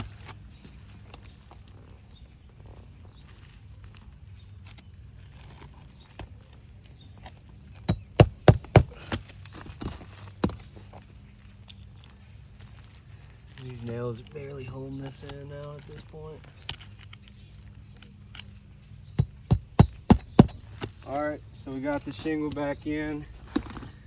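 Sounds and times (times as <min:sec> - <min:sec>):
hammer striking roofing nails: 0:07.9 - 0:10.6, 0:19.2 - 0:21.0.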